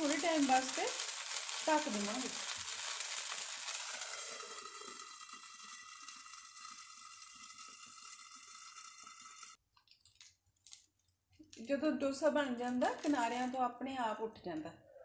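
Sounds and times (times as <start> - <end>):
batter sizzling in a hot pan: 0.0 - 9.6.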